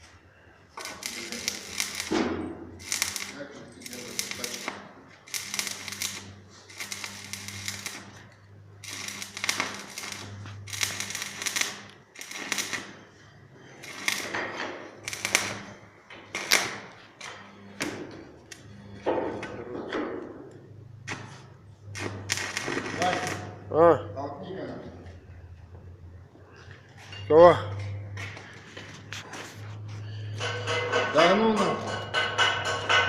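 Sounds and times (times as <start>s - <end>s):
arc welder crackling and hissing: 0.0s - 13.1s, 13.8s - 18.8s, 20.5s - 23.8s
low transformer hum: 0.8s - 12.8s.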